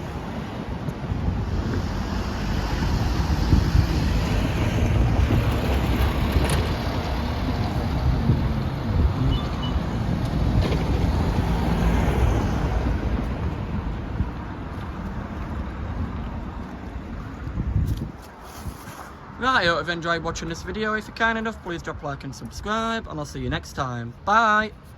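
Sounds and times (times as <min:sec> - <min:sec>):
wind buffeting microphone: 0:00.0 - 0:21.2.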